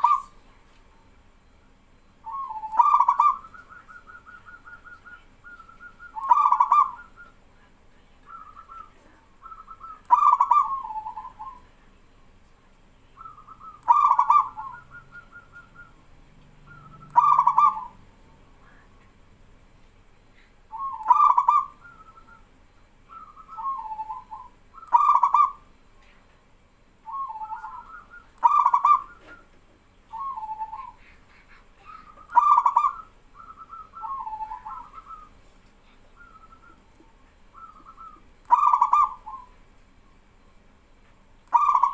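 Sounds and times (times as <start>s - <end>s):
dove cooing: 0.0s - 0.4s, 2.2s - 7.4s, 8.2s - 11.7s, 13.2s - 18.1s, 20.7s - 22.4s, 23.1s - 25.7s, 27.1s - 39.6s, 41.5s - 41.9s
distant doves cooing: 0.0s - 7.6s, 8.2s - 11.8s, 13.1s - 19.2s, 20.4s - 26.1s, 27.0s - 40.2s, 41.4s - 41.9s.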